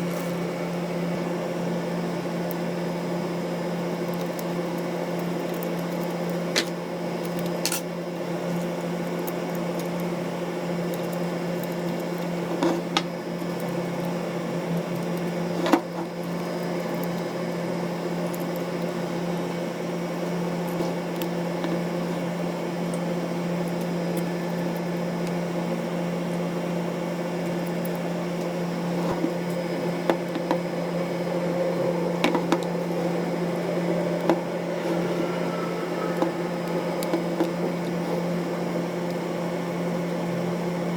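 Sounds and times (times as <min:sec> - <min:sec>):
low machine hum: 0:00.0 - 0:40.9.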